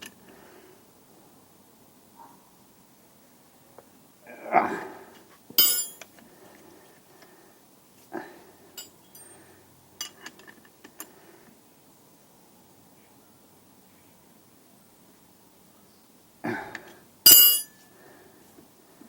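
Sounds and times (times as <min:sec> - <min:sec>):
metal hand tools clinking on metal: 0:05.6 - 0:06.0, 0:17.3 - 0:17.8.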